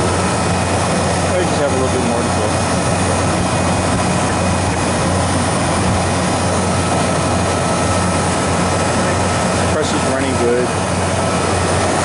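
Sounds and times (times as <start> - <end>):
condensing unit humming: 0.0 - 12.0
fan noise: 0.0 - 12.0.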